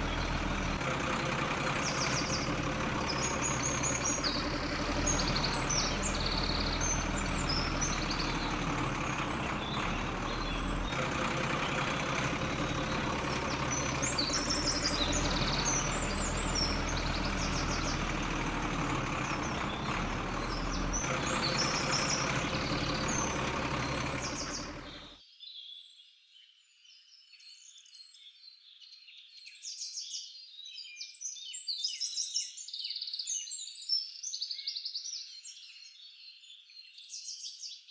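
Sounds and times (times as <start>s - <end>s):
birds chirping: 0.0s - 25.1s
truck engine running: 0.0s - 25.1s.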